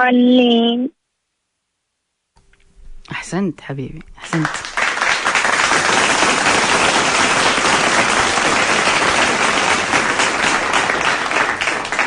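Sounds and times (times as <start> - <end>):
hands clapping: 4.2 - 12.0.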